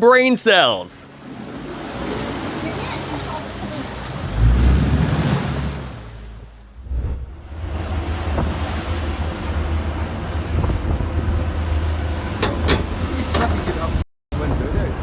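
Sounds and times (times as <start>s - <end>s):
wind buffeting microphone: 6.8s - 13.0s.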